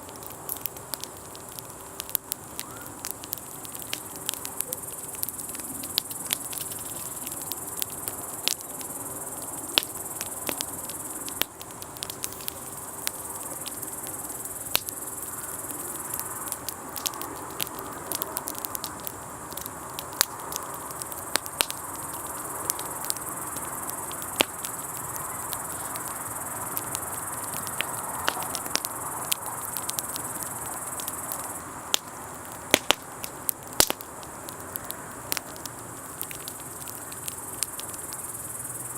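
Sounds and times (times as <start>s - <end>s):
campfire crackling and popping: 0.0s - 38.9s
crickets chirring: 0.0s - 38.9s.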